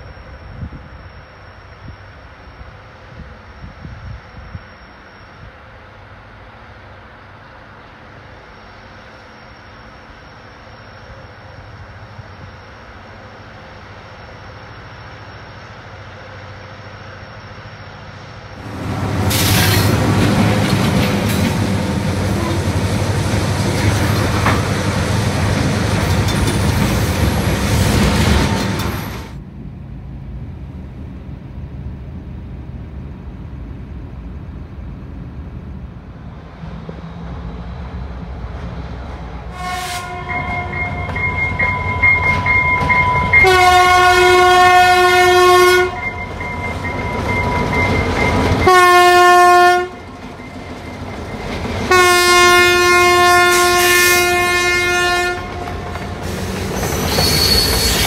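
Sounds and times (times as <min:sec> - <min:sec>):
distant diesel locomotives: 0:00.0 - 0:58.0
freight cars rolling on rails: 0:07.2 - 0:58.0
locomotive horn chord: 0:22.3 - 0:22.8, 0:39.5 - 0:41.2, 0:43.2 - 0:46.2, 0:48.6 - 0:50.0, 0:51.9 - 0:55.7.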